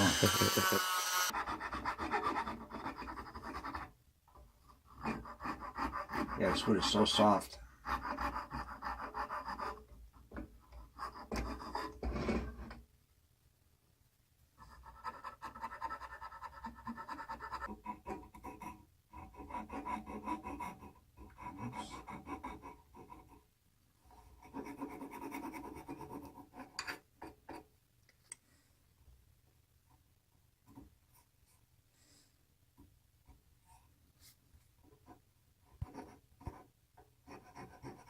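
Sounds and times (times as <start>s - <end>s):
hand tool carving wood: 0.0s - 3.9s, 4.9s - 7.2s, 7.9s - 9.9s, 14.8s - 23.4s, 37.3s - 38.0s.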